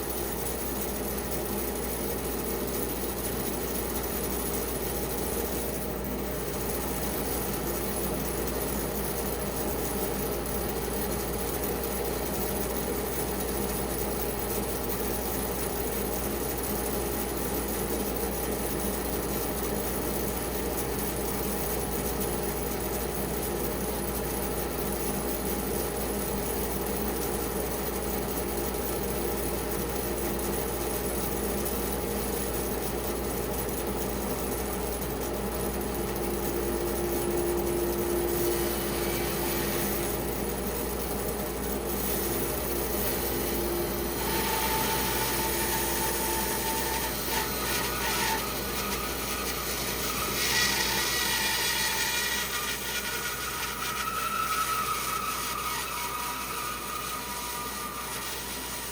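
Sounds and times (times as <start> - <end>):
band saw cutting wood: 36.5 - 40.7, 41.9 - 58.9.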